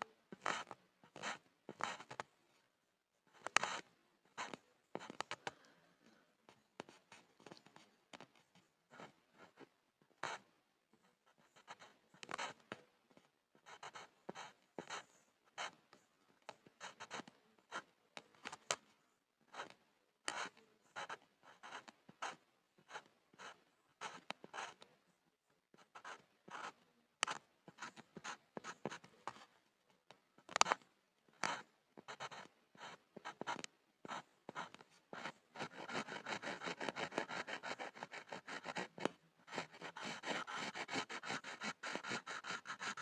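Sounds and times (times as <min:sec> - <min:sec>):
pencil scribbling on wood: 0:13.6 - 0:15.8, 0:31.4 - 0:43.0.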